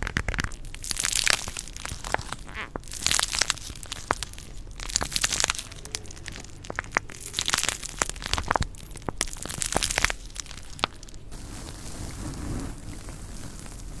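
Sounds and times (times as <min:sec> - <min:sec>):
stones grinding together: 0:06.3 - 0:14.0.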